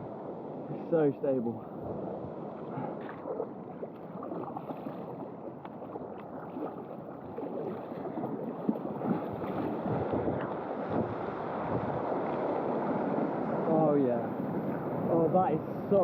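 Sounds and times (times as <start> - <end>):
sea water rushing and splashing: 0.0 - 16.0.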